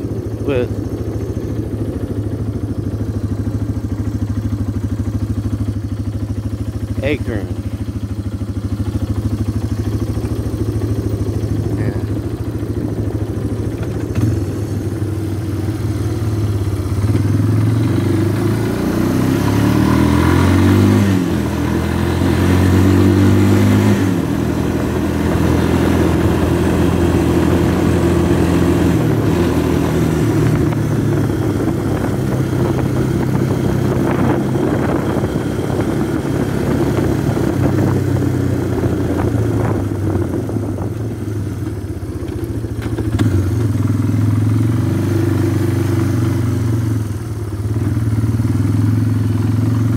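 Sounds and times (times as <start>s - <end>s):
atv engine running: 0.0s - 49.9s.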